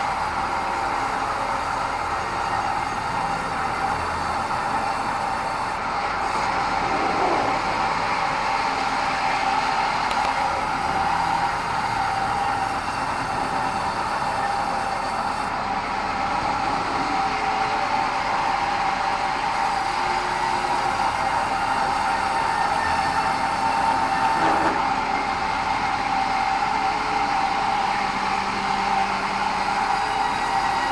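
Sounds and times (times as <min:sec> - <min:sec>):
band saw whining: 0:00.0 - 0:30.9
mechanical noise: 0:03.9 - 0:08.8.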